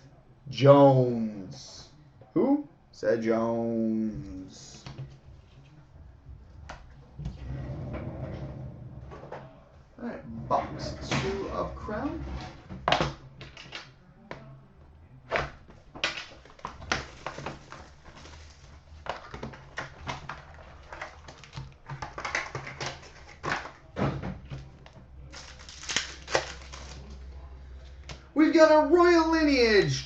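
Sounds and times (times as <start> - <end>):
cards scraping and tapping: 15.4 - 23.8
packaging crinkling and rustling: 16.0 - 23.9, 24.6 - 27.3.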